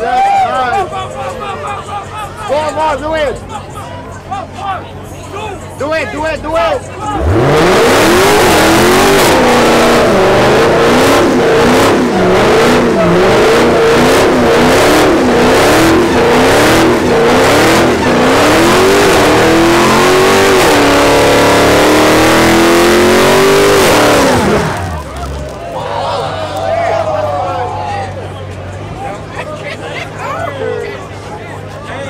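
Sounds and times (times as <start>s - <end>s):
car engine revving hard: 7.1s - 25.6s.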